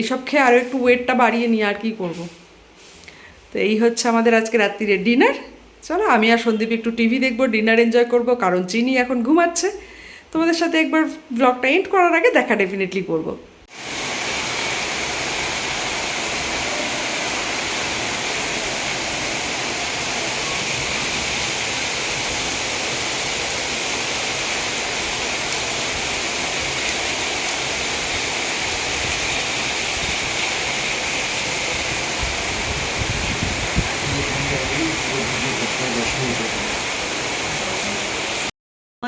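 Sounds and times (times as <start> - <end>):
heavy rain falling: 13.7 - 38.5.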